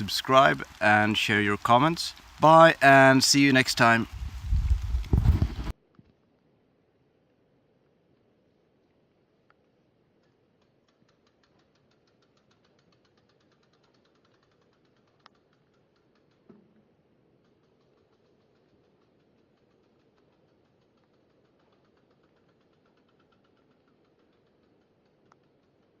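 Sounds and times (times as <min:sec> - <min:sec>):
faint ticking: 0:00.0 - 0:05.2.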